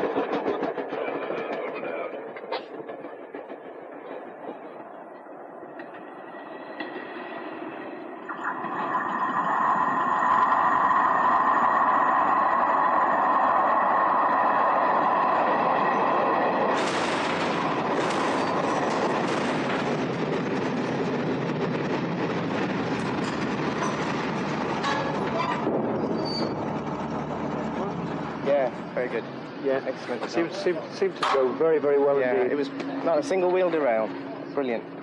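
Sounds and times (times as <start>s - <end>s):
train running with high whine: 0.0s - 35.0s
rattling and clatter: 16.6s - 28.8s.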